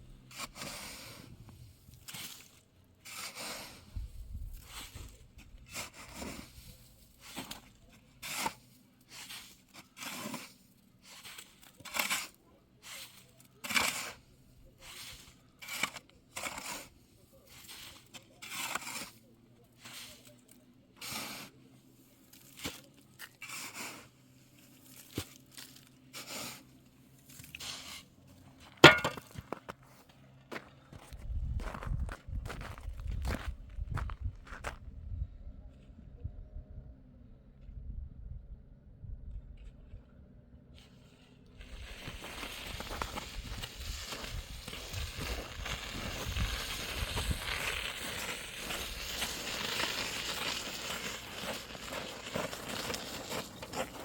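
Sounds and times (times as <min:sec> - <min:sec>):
short scrapes and rubbing: 0:08.2 - 0:19.2
footsteps crunching: 0:28.6 - 0:34.8, 0:41.6 - 0:54.0.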